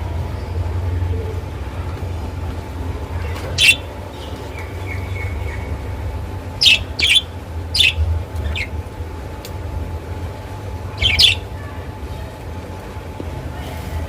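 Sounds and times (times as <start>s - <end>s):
parrots chirping: 3.2s - 8.8s, 10.9s - 11.5s.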